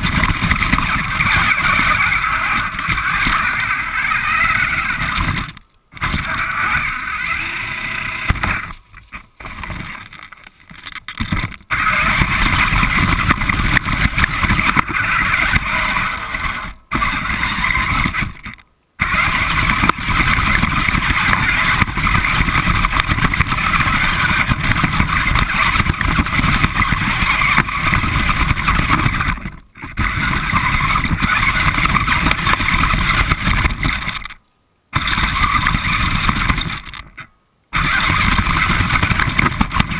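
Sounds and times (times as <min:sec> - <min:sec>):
remote control car motor running: 0:00.0 - 0:08.8, 0:09.4 - 0:34.4, 0:35.0 - 0:39.9.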